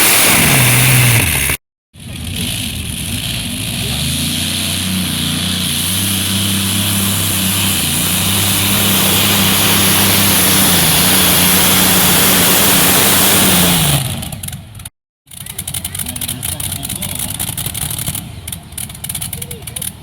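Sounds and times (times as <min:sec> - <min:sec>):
vehicle engine running under load: 0:00.0 - 0:20.0.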